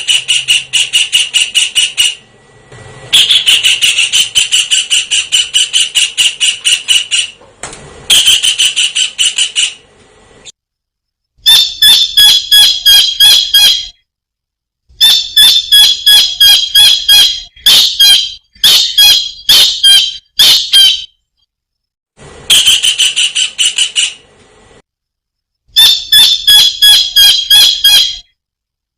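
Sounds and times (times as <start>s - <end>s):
kingfisher calling shrill notes: 3.2s - 7.4s.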